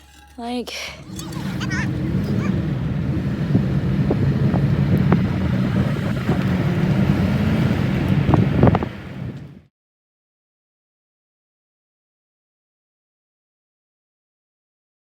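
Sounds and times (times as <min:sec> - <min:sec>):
engine and road drone: 0:00.0 - 0:09.7.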